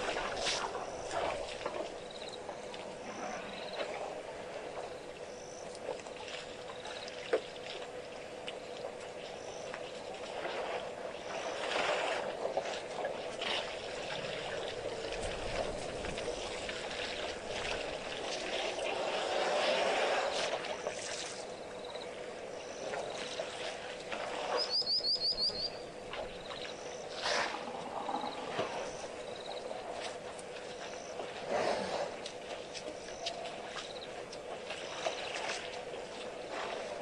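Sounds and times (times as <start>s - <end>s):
small birds chirping: 24.5s - 27.2s.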